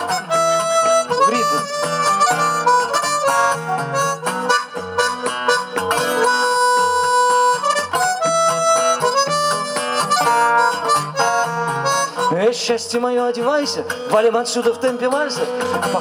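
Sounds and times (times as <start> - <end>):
harmonica melody: 0.0 - 14.1
strummed guitar: 0.0 - 16.0.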